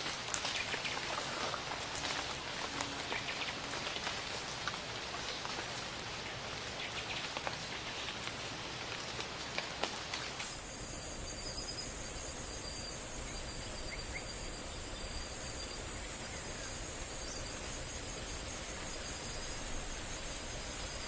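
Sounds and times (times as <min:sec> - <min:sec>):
insect drone: 0:00.0 - 0:21.0
soft hiss: 0:00.0 - 0:21.0.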